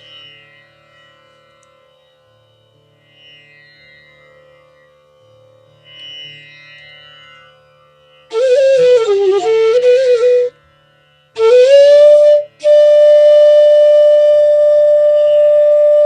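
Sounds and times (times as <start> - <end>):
bamboo flute melody: 8.3 - 10.6, 11.4 - 16.0.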